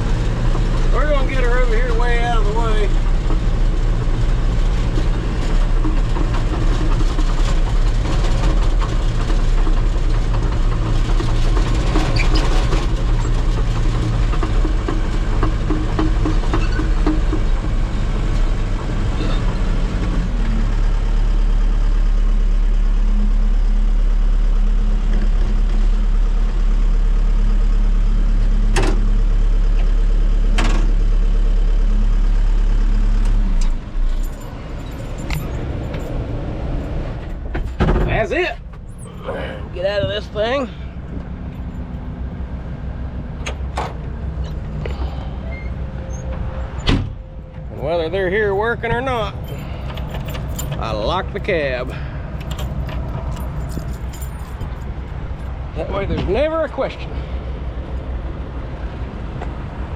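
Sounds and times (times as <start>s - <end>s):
rattling and clatter: 0.0s - 20.4s, 33.7s - 39.2s, 47.6s - 56.5s
heavy diesel engine running: 0.0s - 59.9s.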